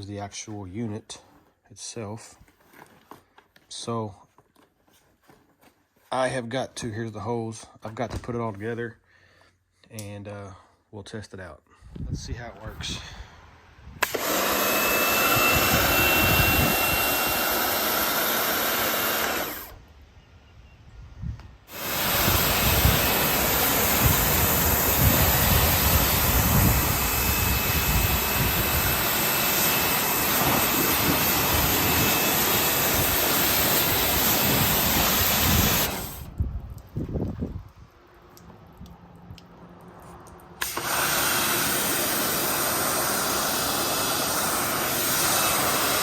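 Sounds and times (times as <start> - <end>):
pressure washer spraying water: 14.0 - 19.8, 21.7 - 36.3, 40.6 - 46.0.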